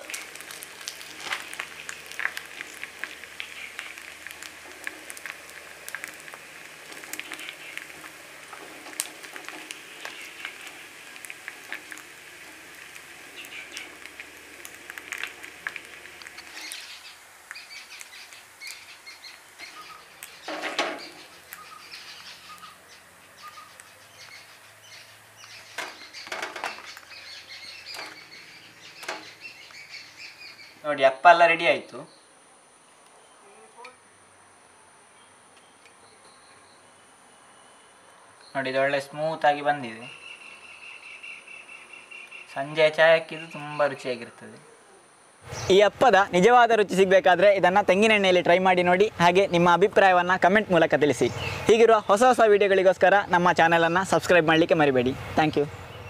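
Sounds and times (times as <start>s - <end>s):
batter sizzling in oil: 0.0s - 30.8s
birds chirping: 0.0s - 34.0s, 35.1s - 56.0s.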